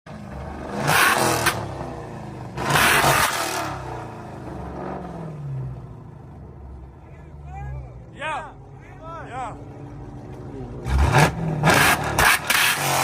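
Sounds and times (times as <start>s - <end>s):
car engine revving: 0.1s - 6.4s, 9.5s - 13.0s
engine rumbling idle: 5.6s - 11.0s.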